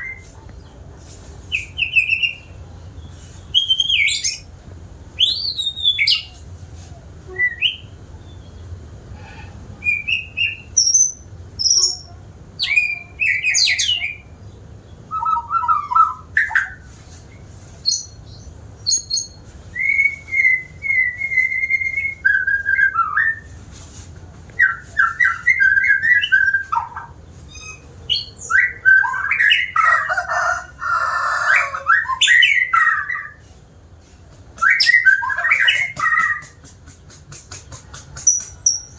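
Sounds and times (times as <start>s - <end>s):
bird singing whistled phrases: 3.5s - 4.4s, 5.2s - 6.4s, 7.3s - 8.0s, 9.8s - 14.3s, 15.1s - 16.9s, 18.8s - 23.5s, 24.6s - 29.9s, 34.6s - 36.6s.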